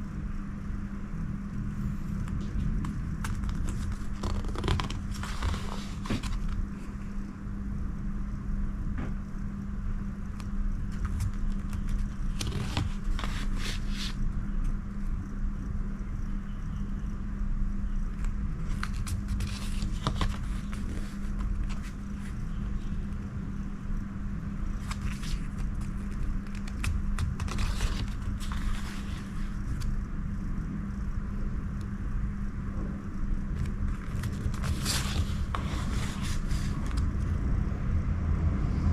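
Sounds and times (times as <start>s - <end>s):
steady low hum: 0.0s - 38.9s
postcards and packaging rustling: 2.3s - 6.9s, 10.9s - 14.2s, 18.2s - 22.7s, 24.7s - 29.9s, 33.6s - 37.2s.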